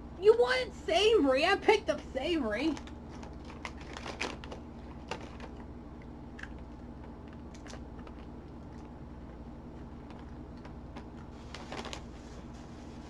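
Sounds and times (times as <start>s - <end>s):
steady low hum: 0.0s - 13.0s
chips crunching: 2.7s - 12.5s.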